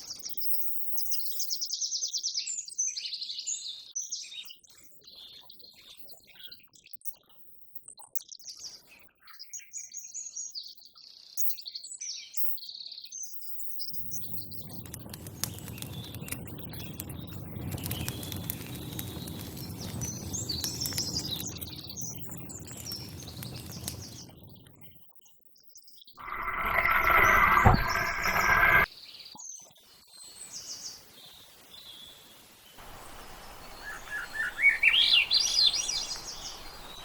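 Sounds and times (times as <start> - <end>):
rushing noise with crackling clicks: 14.0 - 24.8, 26.2 - 28.9
small birds chirping: 14.0 - 24.9.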